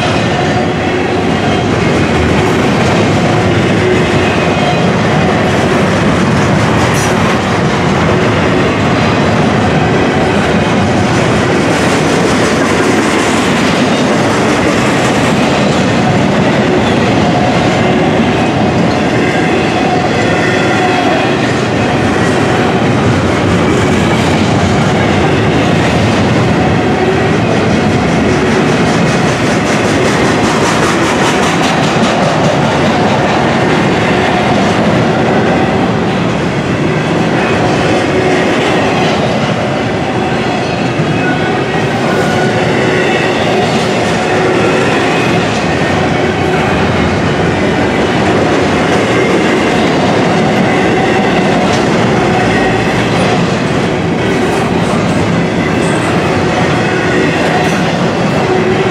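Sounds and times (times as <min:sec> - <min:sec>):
train wheels rumbling on rail: 0:00.0 - 0:58.9
wheels clickety-clack: 0:01.5 - 0:19.2, 0:20.9 - 0:36.7.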